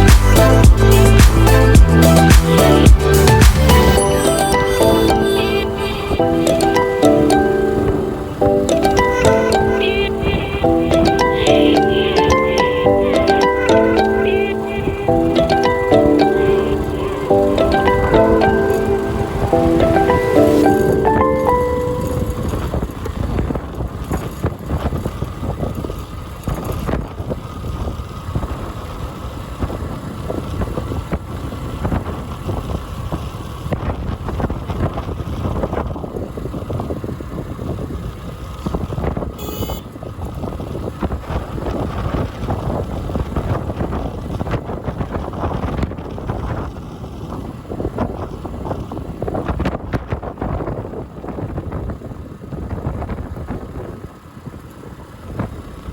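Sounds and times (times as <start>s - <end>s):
wind buffeting microphone: 14.5s - 55.9s.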